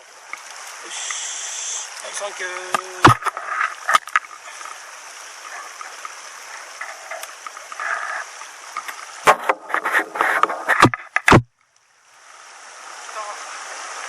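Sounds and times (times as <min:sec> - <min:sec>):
stream water rushing: 0:00.0 - 0:14.0
sharp knocks and rustles: 0:02.6 - 0:04.8, 0:05.4 - 0:11.6.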